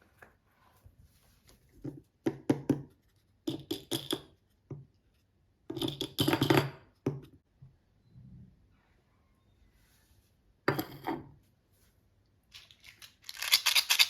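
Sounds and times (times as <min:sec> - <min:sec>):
toy pieces clicking and tapping: 0:12.6 - 0:14.0.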